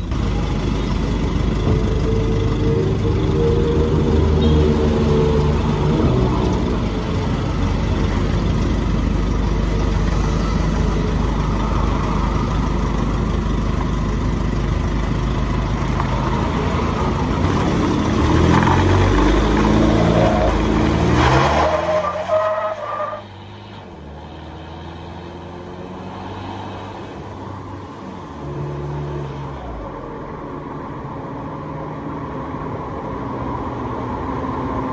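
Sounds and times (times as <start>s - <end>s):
pickup truck engine exhaust: 0.0s - 25.4s
road noise: 0.0s - 34.9s.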